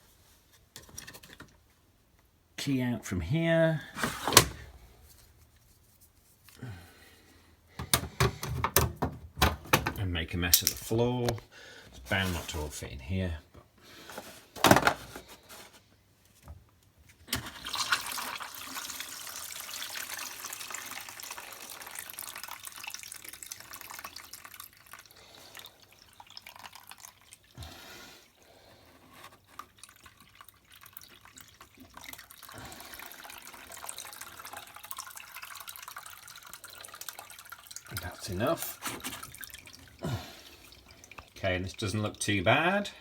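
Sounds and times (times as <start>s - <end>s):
water pouring into a container: 17.3s - 28.4s, 29.1s - 42.8s.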